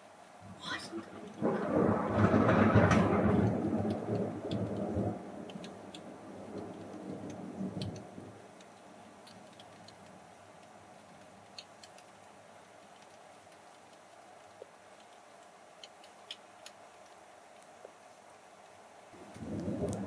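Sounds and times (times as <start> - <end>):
thunder rolling: 0.4 - 8.4, 19.2 - 20.0
faint ticks: 1.2 - 20.0.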